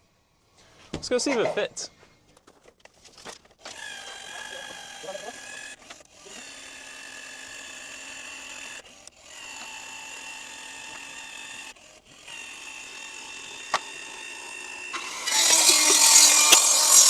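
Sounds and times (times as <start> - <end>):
small electric motor whining: 3.6 - 17.0.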